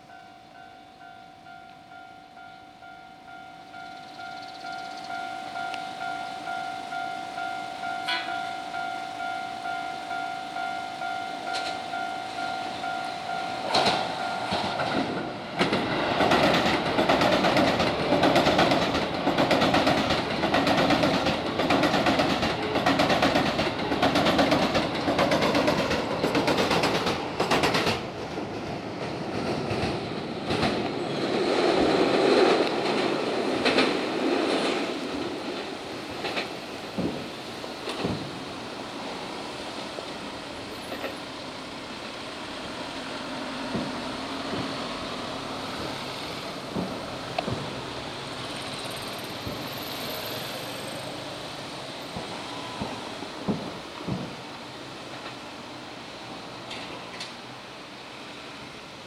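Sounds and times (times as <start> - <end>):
pulsing ringing tone: 0.0 - 14.9
train wheels clattering over rails: 13.6 - 55.4.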